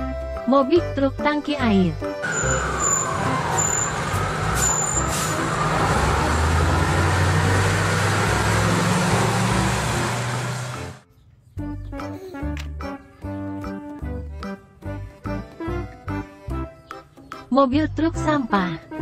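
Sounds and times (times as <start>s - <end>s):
truck diesel engine passing: 2.2s - 11.0s.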